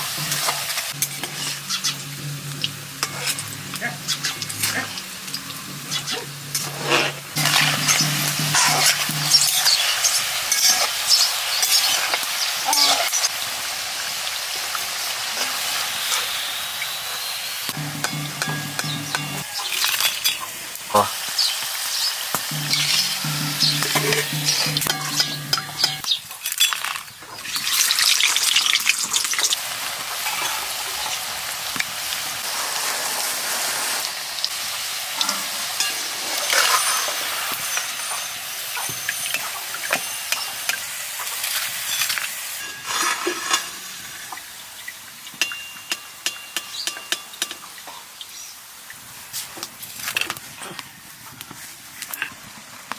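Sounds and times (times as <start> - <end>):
utensil scraping a pan: 0.0 - 12.2, 22.5 - 26.1, 41.6 - 43.8
food sizzling in a pan: 0.0 - 52.8.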